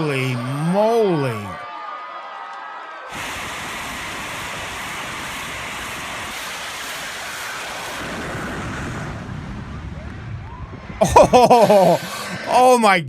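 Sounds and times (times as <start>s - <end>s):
jet engines roaring: 3.2s - 10.5s.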